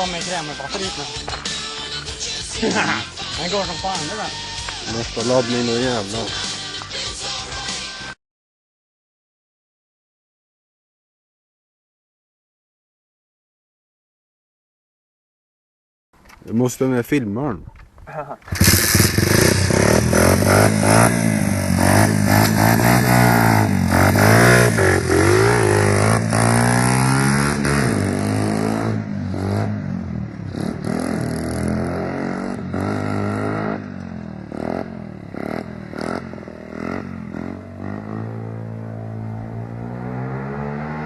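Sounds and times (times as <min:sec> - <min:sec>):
motorcycle engine revving: 0:18.4 - 0:41.0.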